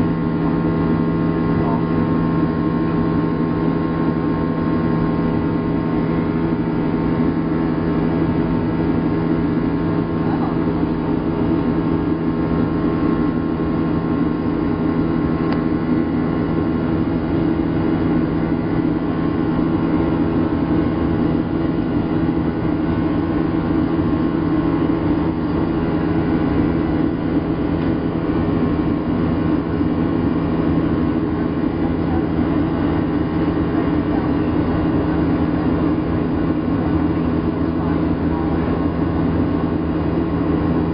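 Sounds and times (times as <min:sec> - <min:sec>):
aircraft engine drone: 0:00.0 - 0:40.9
low hum: 0:00.0 - 0:40.9.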